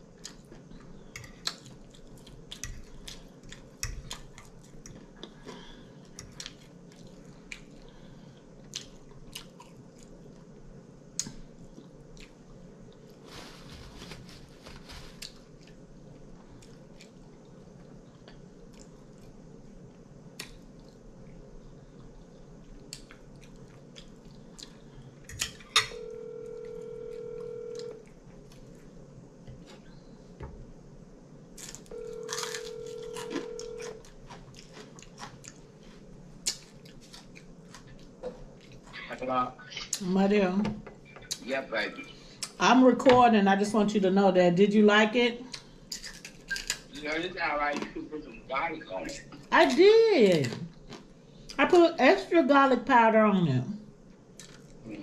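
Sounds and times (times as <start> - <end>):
chewing and lip smacks: 0.2 - 8.0, 8.6 - 10.5, 16.4 - 19.4, 20.3 - 25.6, 31.6 - 35.8, 36.4 - 39.1, 54.3 - 54.8
paper towel rustling: 13.2 - 15.4
phone ringing: 25.8 - 28.0, 31.9 - 34.0.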